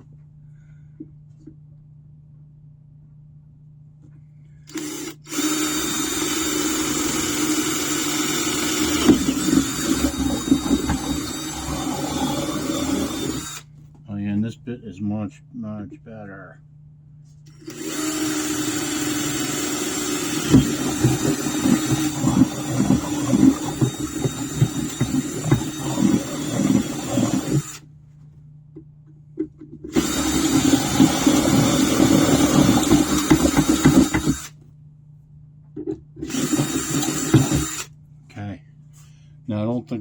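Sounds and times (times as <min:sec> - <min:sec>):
electric drill boring through metal: 0:04.7 - 0:13.6, 0:17.5 - 0:27.8, 0:29.9 - 0:34.5, 0:36.2 - 0:37.9.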